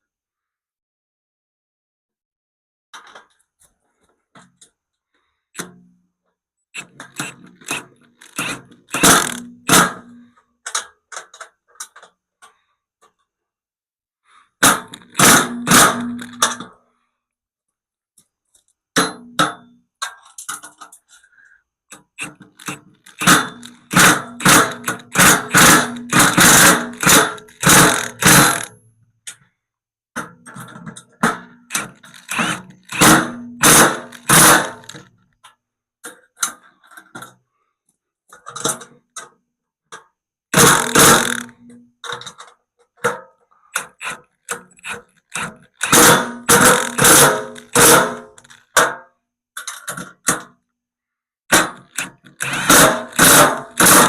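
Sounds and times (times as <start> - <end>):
ratchet wrench clicking: 6.8 - 9.5, 22.2 - 28.8, 31.7 - 35.0, 40.6 - 41.6, 43.8 - 48.6, 51.8 - 54.0.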